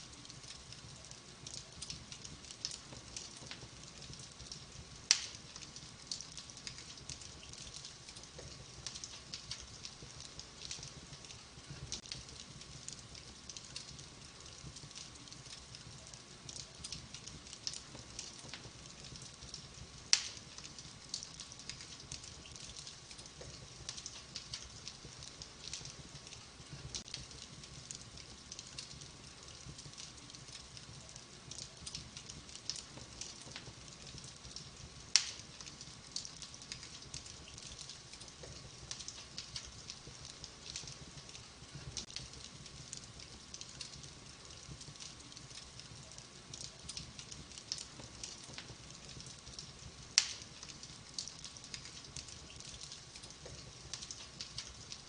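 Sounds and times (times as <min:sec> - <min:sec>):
wood fire crackling: 0:00.0 - 0:55.0
sharp fire pops: 0:00.2 - 0:55.0.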